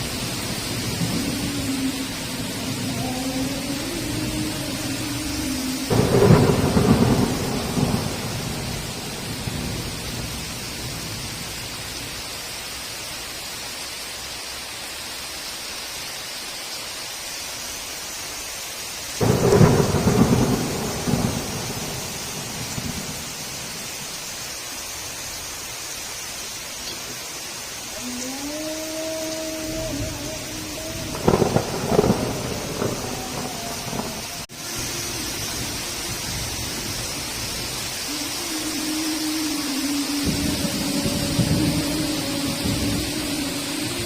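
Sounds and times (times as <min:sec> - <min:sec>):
thunder rumbling: 0:00.0 - 0:12.2, 0:19.2 - 0:24.3, 0:27.9 - 0:44.0
heavy rain: 0:00.0 - 0:44.0.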